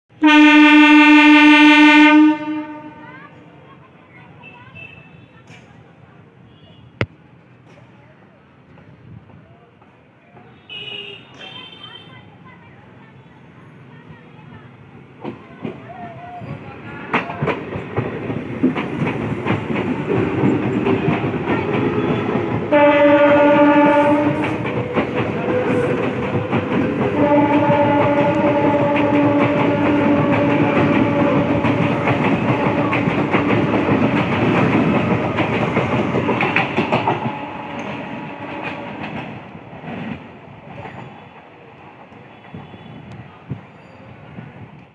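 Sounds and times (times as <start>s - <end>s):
train horn: 0.1s - 3.3s, 21.6s - 33.8s, 36.8s - 39.4s
train wheels clattering over rail joints: 15.2s - 41.4s.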